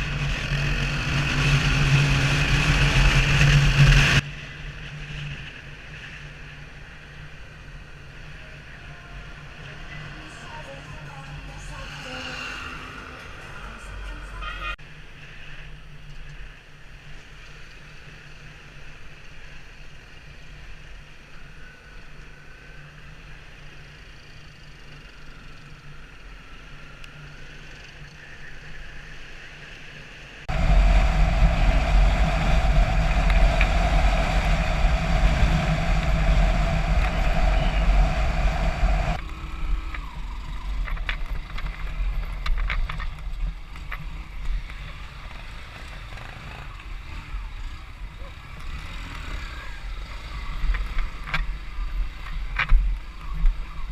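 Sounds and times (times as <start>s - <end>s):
motor engine drone: 30.5s - 41.8s.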